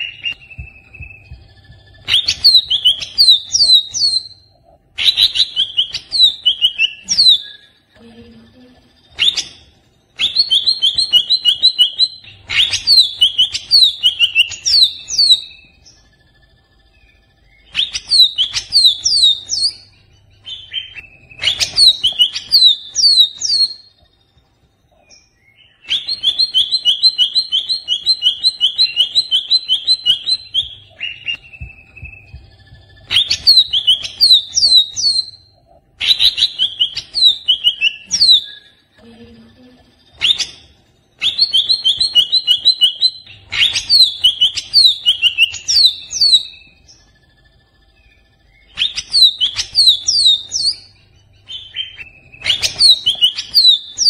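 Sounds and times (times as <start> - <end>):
bird singing agitated song: 0.0 - 54.0.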